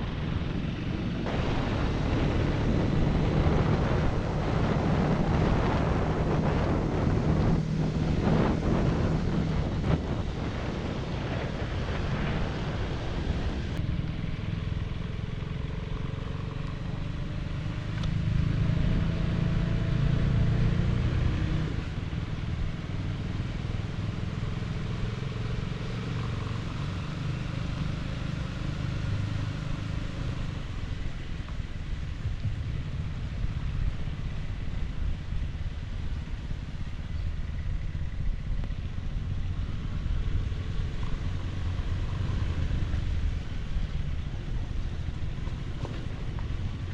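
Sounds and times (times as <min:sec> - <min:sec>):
wind noise on microphone: 0:00.0 - 0:14.2, 0:26.6 - 0:46.9
motorcycle engine running: 0:00.0 - 0:46.9.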